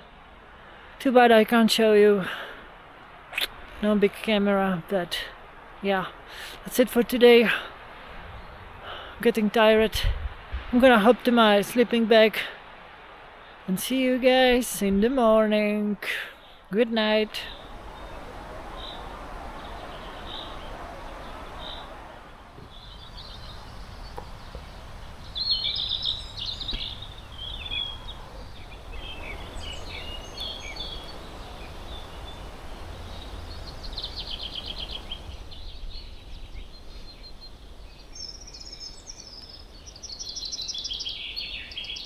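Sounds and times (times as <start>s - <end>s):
steady background hiss: 0.0s - 42.0s
small birds chirping: 16.3s - 42.0s.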